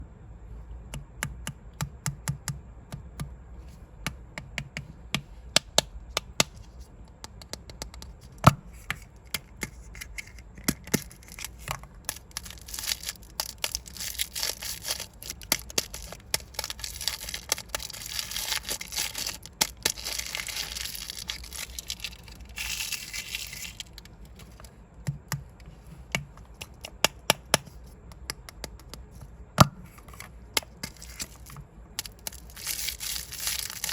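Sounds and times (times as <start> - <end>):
plastic balls clicking: 9.3 - 29.2, 30.0 - 33.9
plastic wrapper crinkling: 9.7 - 24.7, 30.0 - 33.9.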